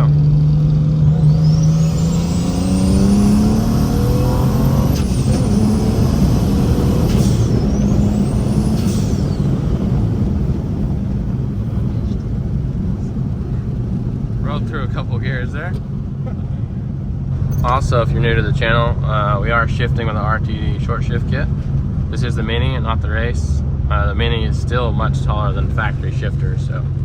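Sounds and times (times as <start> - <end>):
car engine accelerating: 0.0 - 27.0
turbo whistle: 1.1 - 10.3.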